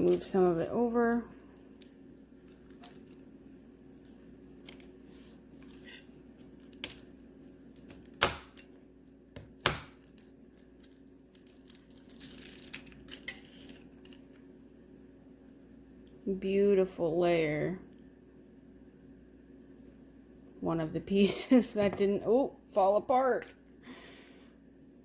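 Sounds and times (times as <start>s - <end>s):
wax crumbling and crackling: 0.0s - 14.5s.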